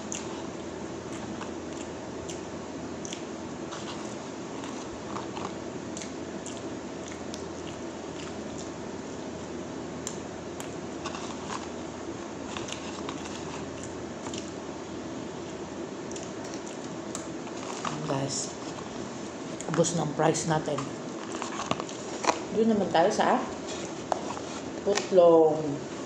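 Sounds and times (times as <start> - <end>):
chewing french fries: 0.0 - 9.4, 10.0 - 14.6, 15.4 - 19.9
steady background noise: 0.0 - 26.0.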